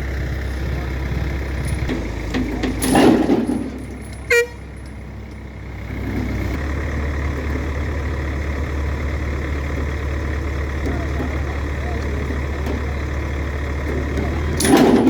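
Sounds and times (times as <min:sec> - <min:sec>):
heavy vehicle engines running: 0:00.0 - 0:15.0
short horn toot: 0:04.3 - 0:04.7.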